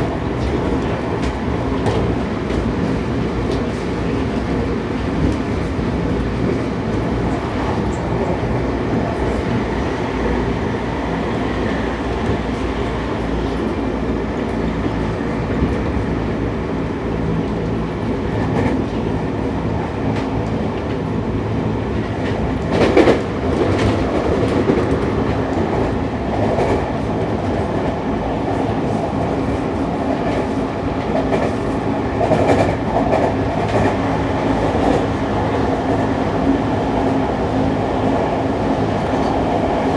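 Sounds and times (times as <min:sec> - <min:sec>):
train wheels rumbling on rail: 0:00.0 - 0:39.9
rail-joint clatter: 0:30.0 - 0:36.1.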